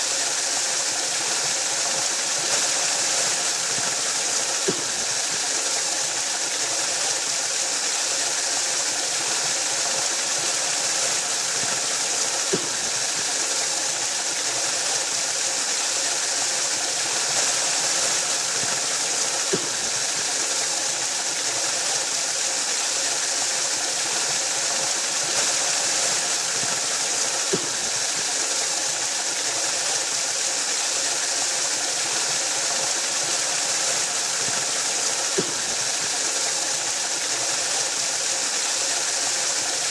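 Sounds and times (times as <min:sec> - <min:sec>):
waterfall rushing: 0:09.6 - 0:39.9.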